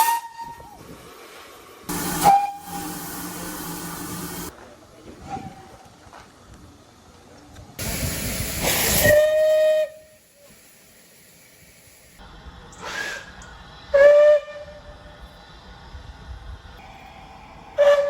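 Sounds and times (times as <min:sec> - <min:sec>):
steam locomotive whistle: 0:00.0 - 0:00.7, 0:01.9 - 0:04.5, 0:08.9 - 0:10.2, 0:13.9 - 0:14.9, 0:17.8 - 0:18.0
escaping steam rush: 0:01.9 - 0:04.5, 0:07.8 - 0:12.2, 0:12.8 - 0:14.0.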